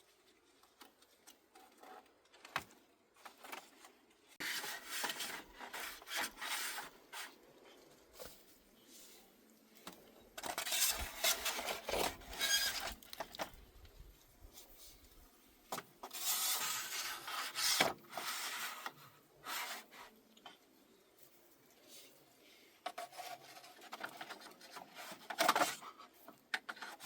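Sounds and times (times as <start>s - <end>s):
scraping on bamboo: 3.2s - 9.5s, 10.4s - 13.6s, 14.4s - 20.3s, 21.1s - 27.0s.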